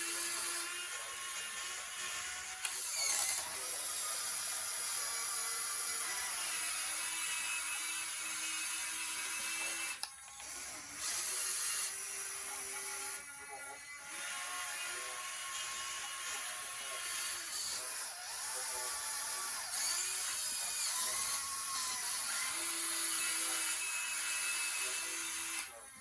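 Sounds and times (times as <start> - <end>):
hydraulic pump motor whining: 0.0 - 13.3.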